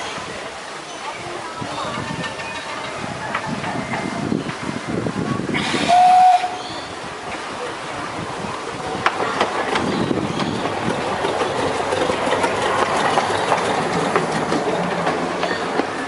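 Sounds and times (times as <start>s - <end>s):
small train rumbling on track: 0.0s - 16.0s
wheels clicking over rail joints: 1.7s - 4.7s, 8.5s - 16.0s.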